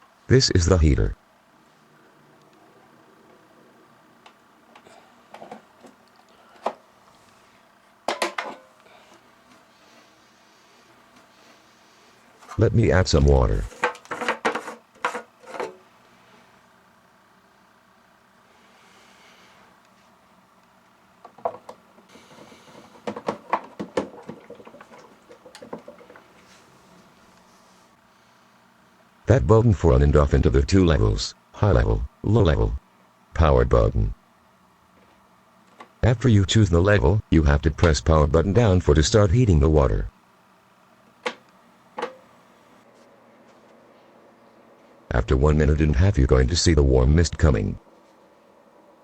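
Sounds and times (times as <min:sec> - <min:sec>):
hard plastic parts knocking and clicking: 0:22.8 - 0:24.4.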